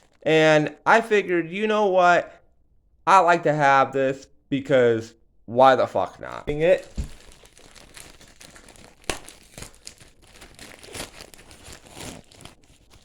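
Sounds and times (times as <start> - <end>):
packaging crinkling and tearing: 6.5 - 13.0.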